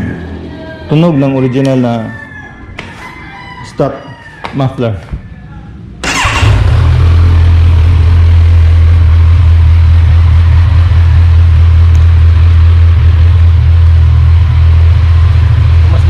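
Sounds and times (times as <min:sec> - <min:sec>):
motorcycle engine idling: 0:06.0 - 0:16.0.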